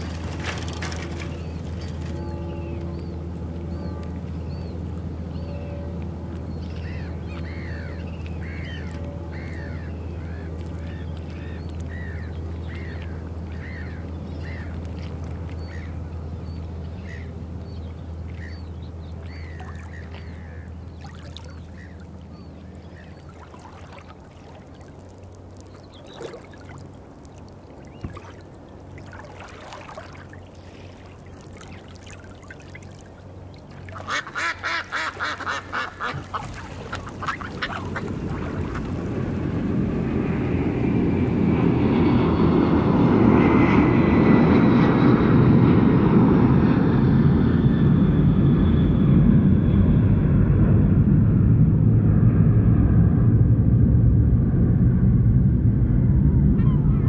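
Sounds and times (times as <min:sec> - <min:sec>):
birds calling: 0:00.0 - 0:39.3
steady low hum: 0:00.0 - 0:57.0.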